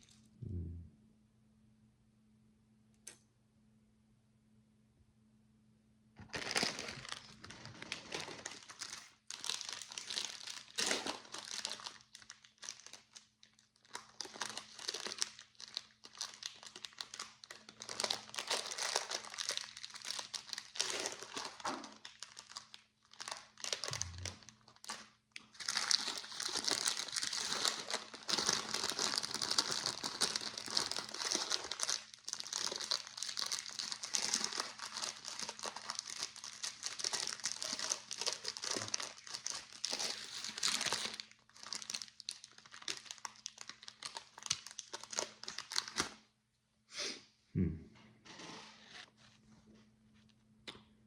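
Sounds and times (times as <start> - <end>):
plastic bag crinkling and rustling: 6.2 - 46.2.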